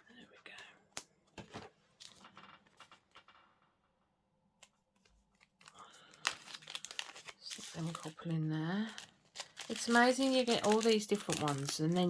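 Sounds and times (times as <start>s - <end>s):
plastic bags rustling: 5.4s - 12.0s.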